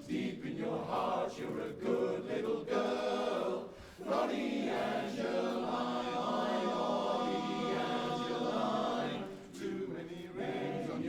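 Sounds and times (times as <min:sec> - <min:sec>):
male chorus singing a cappella: 0:00.0 - 0:11.0.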